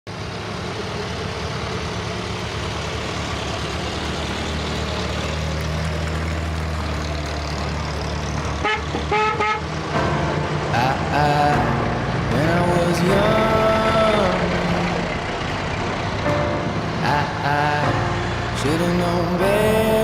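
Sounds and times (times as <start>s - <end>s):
tractor engines running: 0.1s - 20.0s
short horn toots: 8.6s - 9.6s.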